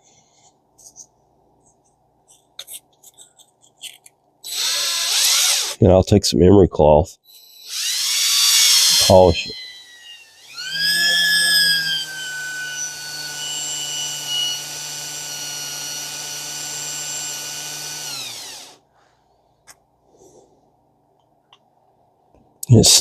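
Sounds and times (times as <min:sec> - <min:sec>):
electric drill motor whining: 0:04.5 - 0:05.8, 0:07.3 - 0:18.8.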